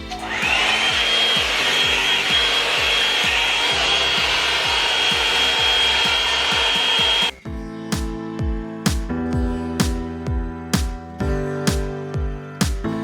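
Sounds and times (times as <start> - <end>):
hair dryer blowing air: 0.0 - 7.3
high motor whine: 0.0 - 7.4
background music beat: 0.0 - 13.0.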